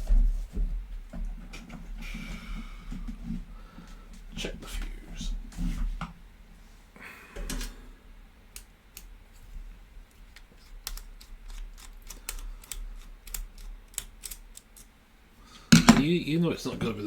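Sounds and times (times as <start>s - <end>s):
screwdriver clicks and taps: 10.3s - 14.9s.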